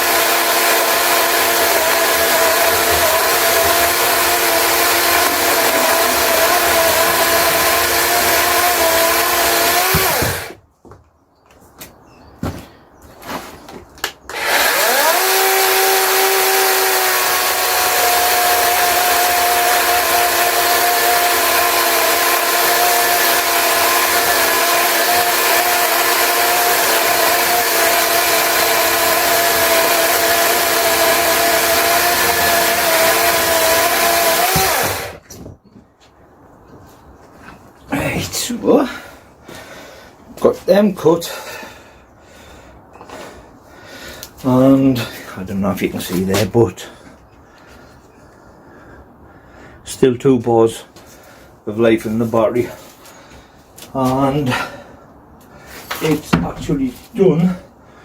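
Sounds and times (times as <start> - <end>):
electric chainsaw whine: 0.0 - 10.6, 14.3 - 35.2.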